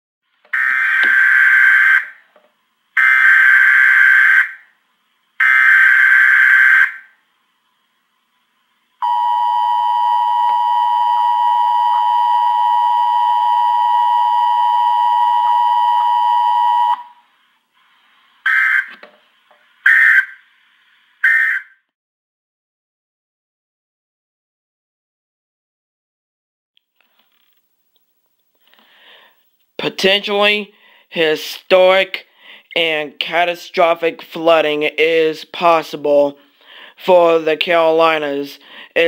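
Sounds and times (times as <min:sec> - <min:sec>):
two-tone attention signal: 0:09.0 - 0:17.2.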